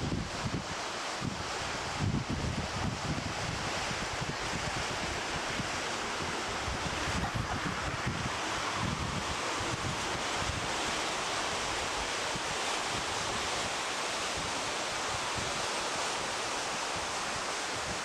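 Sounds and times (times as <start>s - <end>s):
wind buffeting microphone: 0.0s - 13.7s.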